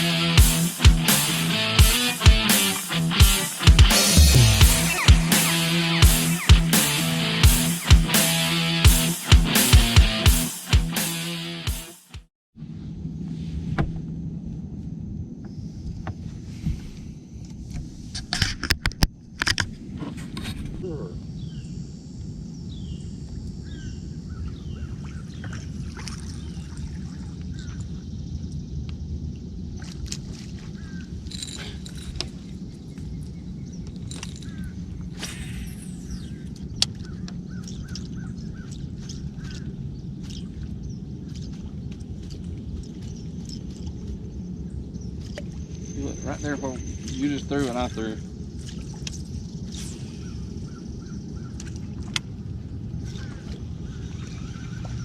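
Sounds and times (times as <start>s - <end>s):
birds calling: 0.0s - 10.5s, 30.7s - 55.0s
loud noisy bursts: 0.0s - 12.1s
faint steady hum: 12.6s - 55.0s
boat engine rumble: 23.2s - 55.0s.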